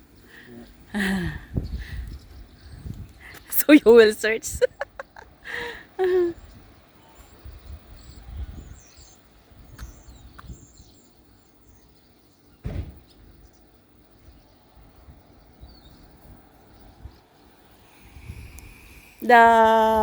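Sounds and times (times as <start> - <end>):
wind rumbling on microphone: 0.7 - 5.6, 6.3 - 11.0, 14.2 - 17.2, 18.0 - 20.0
dull thump: 12.6 - 13.1.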